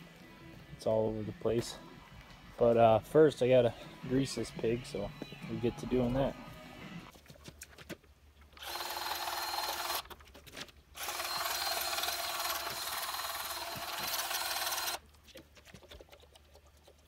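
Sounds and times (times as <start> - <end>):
battery grease gun running: 8.6 - 10.1, 11.0 - 15.0.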